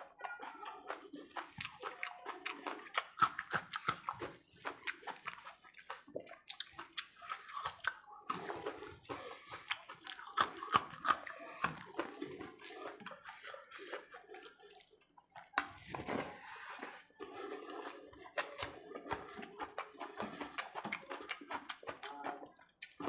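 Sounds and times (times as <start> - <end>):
chewing and biting: 0.0 - 23.0.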